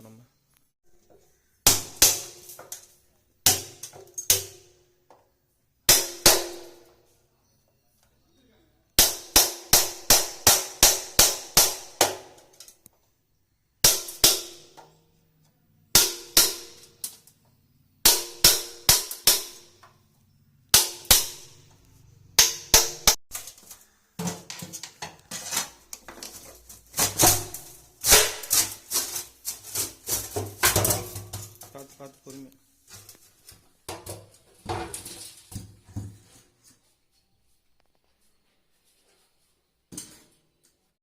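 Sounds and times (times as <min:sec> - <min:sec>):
hammer striking metal: 0:05.9 - 0:06.9, 0:13.8 - 0:14.8, 0:16.0 - 0:16.9, 0:18.0 - 0:19.8, 0:20.7 - 0:21.7, 0:22.4 - 0:23.2.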